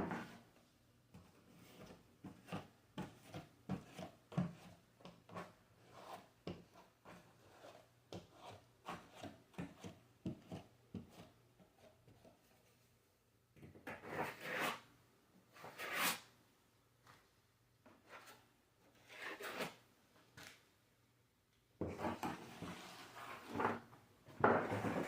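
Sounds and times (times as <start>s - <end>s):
hand tool scraping drywall: 14.0s - 14.9s, 15.6s - 16.3s, 19.0s - 19.8s.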